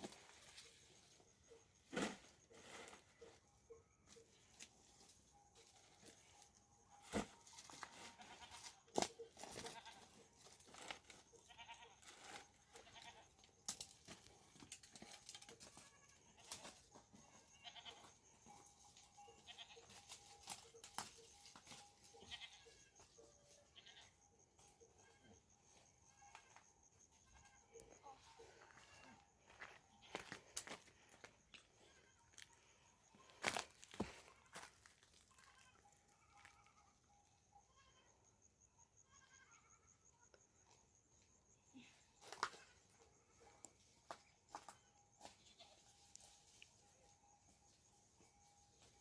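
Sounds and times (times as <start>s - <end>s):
goats bleating: 8.0s - 8.8s, 11.3s - 12.1s, 17.2s - 18.2s, 22.1s - 22.9s, 23.8s - 24.1s.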